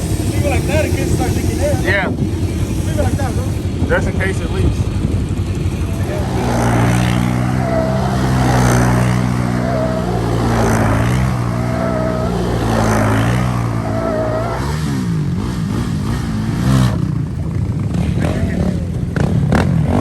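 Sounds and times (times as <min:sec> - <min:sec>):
atv engine idling and revving: 0:00.0 - 0:20.0.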